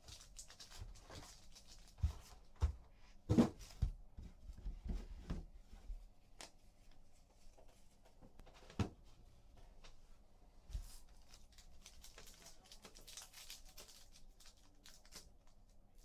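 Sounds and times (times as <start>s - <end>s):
cards and wrappers rustling: 0.0s - 2.4s, 10.8s - 15.8s.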